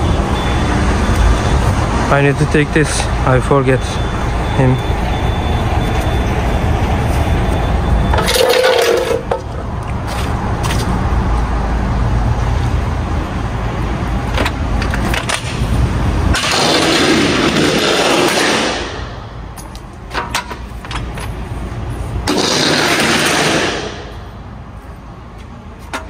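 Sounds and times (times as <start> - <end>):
loud noise bursts: 16.2 - 19.4, 22.2 - 24.3.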